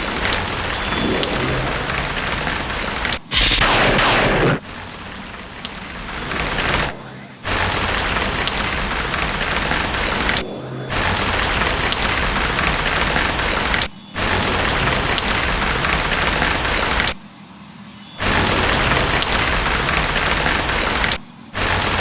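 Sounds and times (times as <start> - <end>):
heavy rain: 0.0 - 17.1, 18.2 - 22.0
loud sharp thunderclap: 0.2 - 5.1.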